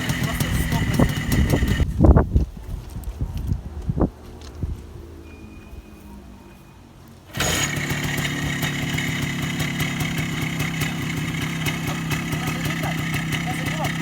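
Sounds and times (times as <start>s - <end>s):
motorcycle engine idling: 0.0s - 1.9s, 7.3s - 14.0s.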